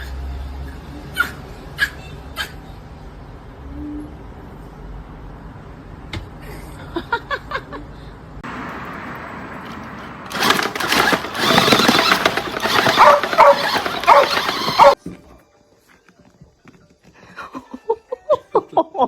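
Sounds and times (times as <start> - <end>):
dog yipping: 1.1 - 2.7, 11.4 - 15.0.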